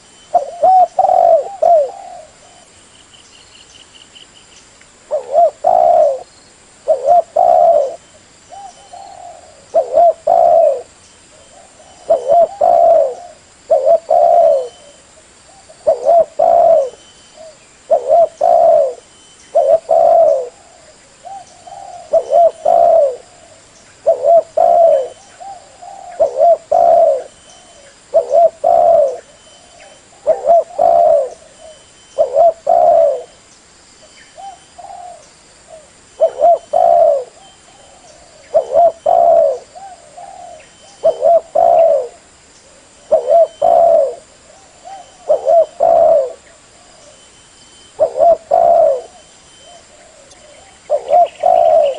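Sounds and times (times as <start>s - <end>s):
dove cooing: 0.0s - 2.7s, 5.1s - 33.4s, 34.3s - 47.3s, 47.9s - 51.9s.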